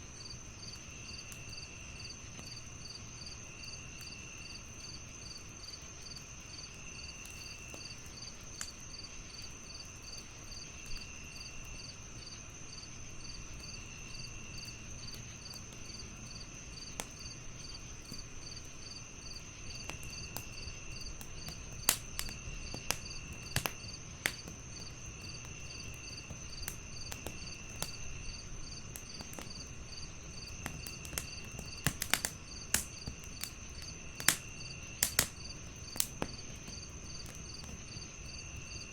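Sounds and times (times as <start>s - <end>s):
crickets chirping: 0.0s - 38.9s
wood fire crackling: 0.0s - 38.9s
fire pops: 7.0s - 12.1s, 13.4s - 38.9s.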